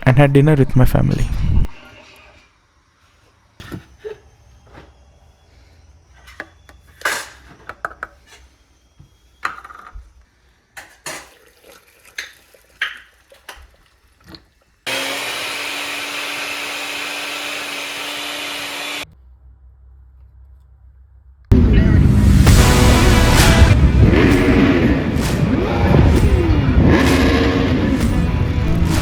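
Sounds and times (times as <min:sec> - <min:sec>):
electric blender running: 0:14.9 - 0:19.1, 0:22.4 - 0:29.0.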